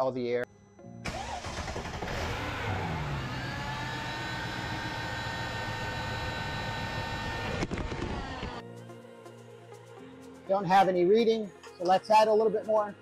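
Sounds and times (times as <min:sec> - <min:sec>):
steady whine: 0:00.1 - 0:08.6
car engine starting and idling: 0:01.0 - 0:08.6.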